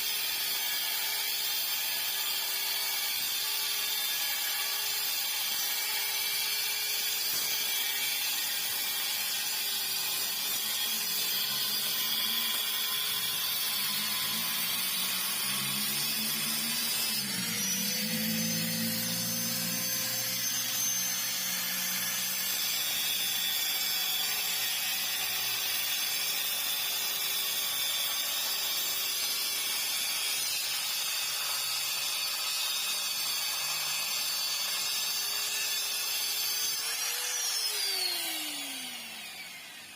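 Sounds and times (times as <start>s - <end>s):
power tool running: 0.0s - 39.9s.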